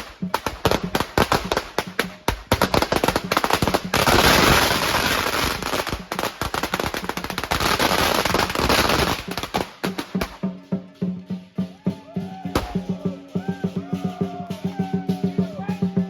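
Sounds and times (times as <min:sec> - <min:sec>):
firecrackers cracking: 0:00.0 - 0:10.4.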